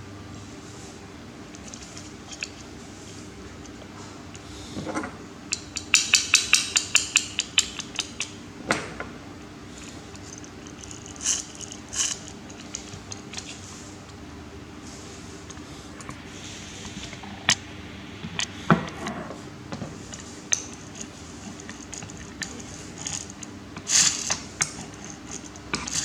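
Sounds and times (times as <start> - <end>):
small hard parts clicking: 9.8 - 13.6, 20.1 - 26.0.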